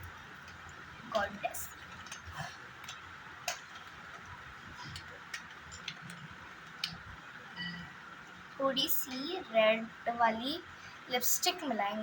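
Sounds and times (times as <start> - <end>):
faint sharp clicks and taps: 0.0 - 7.3
low steady hiss: 0.0 - 12.0.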